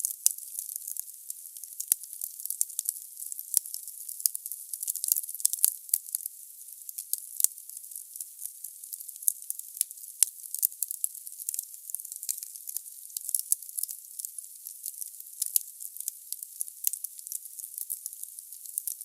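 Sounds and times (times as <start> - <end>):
logs crackling and popping: 9.1 - 13.9.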